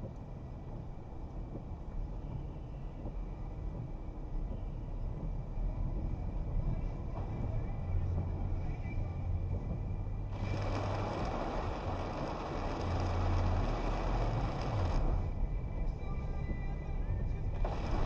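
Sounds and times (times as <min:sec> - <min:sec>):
car engine and tyres rumbling: 0:00.0 - 0:18.0
rain hiss: 0:10.3 - 0:15.3, 0:17.6 - 0:18.0.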